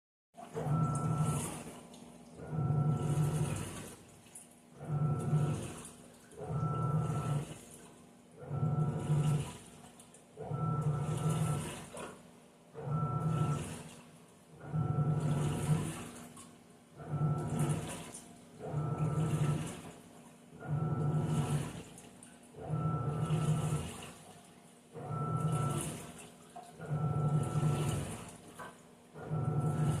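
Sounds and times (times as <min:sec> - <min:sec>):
water sloshing: 0:00.4 - 0:08.2, 0:25.4 - 0:28.9
washing machine motor humming: 0:00.4 - 0:30.0.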